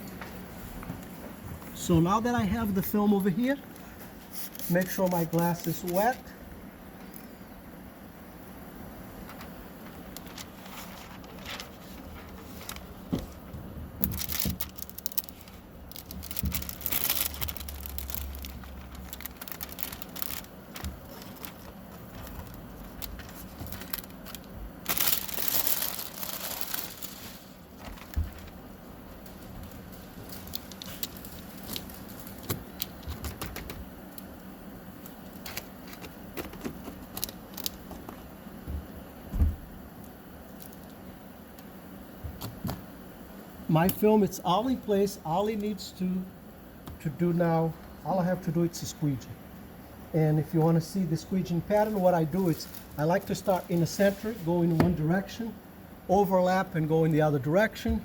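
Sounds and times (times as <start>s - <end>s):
plastic film crinkling and rustling: 1.8s - 6.4s, 9.2s - 34.3s, 35.0s - 38.3s, 40.5s - 41.1s, 50.4s - 55.5s.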